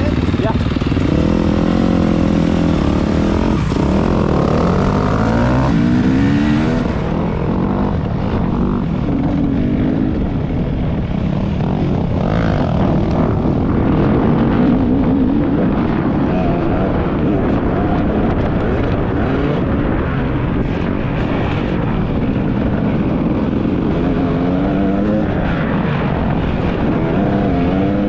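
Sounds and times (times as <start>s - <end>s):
dirt bike engine revving: 0.0s - 10.2s.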